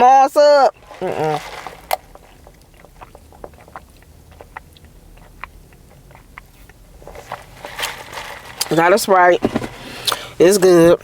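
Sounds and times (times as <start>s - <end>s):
person chewing food: 0.7s - 8.7s.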